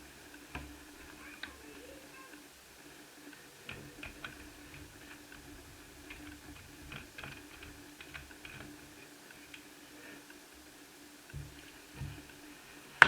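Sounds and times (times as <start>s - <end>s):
faint steady hum: 0.0s - 13.0s
soft knocks: 11.3s - 12.4s.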